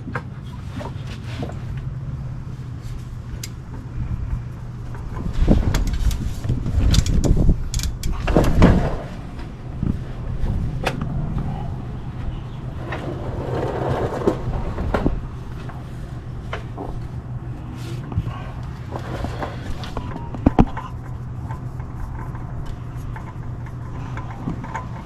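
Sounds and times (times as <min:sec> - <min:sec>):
low hum: 0:00.0 - 0:25.0.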